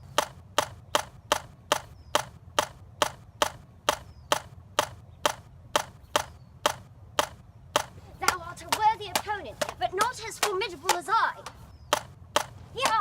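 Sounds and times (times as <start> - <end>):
sharp hard clacks: 0.0 - 13.0.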